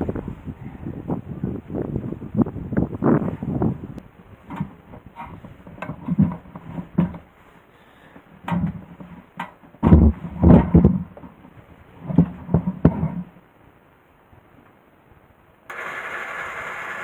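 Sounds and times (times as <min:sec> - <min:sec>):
knocks and thumps: 0:08.5 - 0:11.4.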